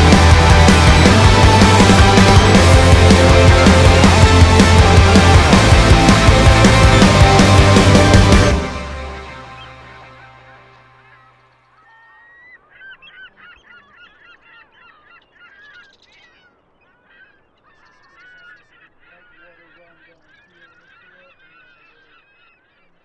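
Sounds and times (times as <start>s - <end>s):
music track: 0.0s - 11.6s
geese honking: 0.0s - 23.0s.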